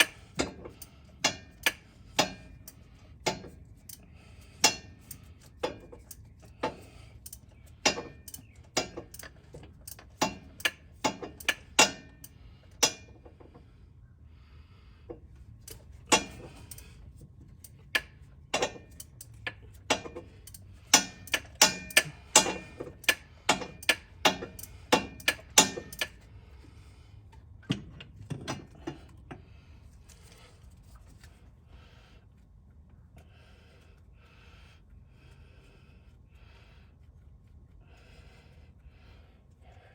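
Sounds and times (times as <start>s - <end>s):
hand tools clinking on metal: 4.6s - 13.1s, 17.6s - 26.2s.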